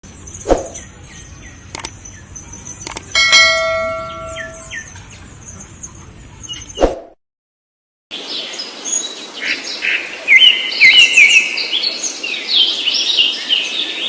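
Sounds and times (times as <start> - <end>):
songbirds chirping: 0.0 - 6.8, 8.2 - 14.0
sharp clicks: 1.7 - 2.0, 2.8 - 3.1
struck ringing tone: 3.2 - 4.9.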